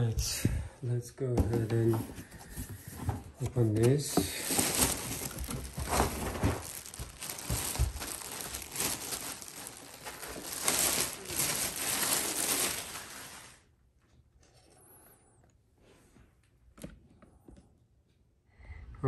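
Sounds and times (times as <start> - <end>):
packaging crinkling and rustling: 2.5 - 13.7.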